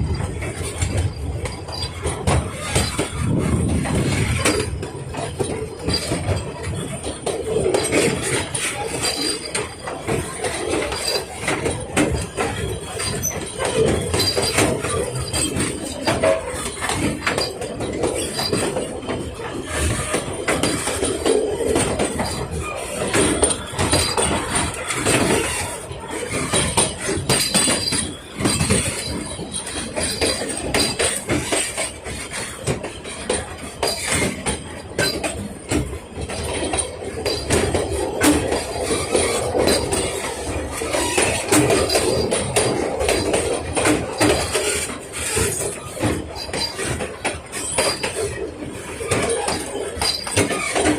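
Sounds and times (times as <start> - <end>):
train wheels and carriages clattering: 0.0 - 50.9.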